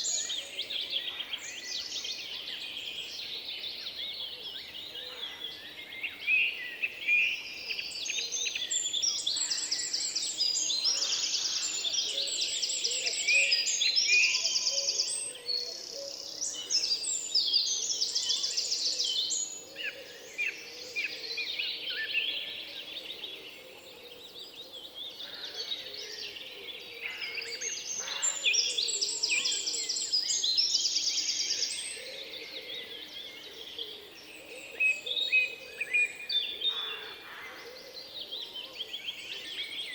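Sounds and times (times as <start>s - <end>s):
songbirds singing chorus: 0.0s - 39.9s.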